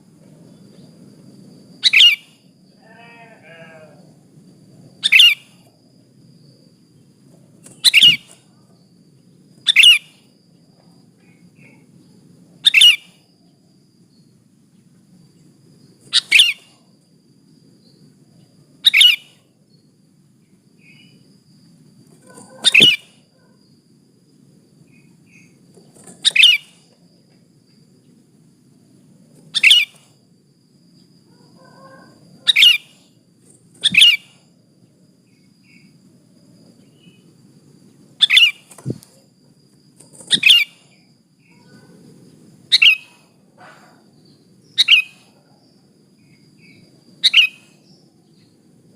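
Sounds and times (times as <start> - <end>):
faint background hum: 0.0 - 48.9
bulbul high sharp calls: 1.8 - 4.0, 5.0 - 5.6, 22.2 - 23.5, 33.8 - 34.5, 38.2 - 38.8, 40.2 - 42.0, 42.7 - 45.4, 46.2 - 48.0.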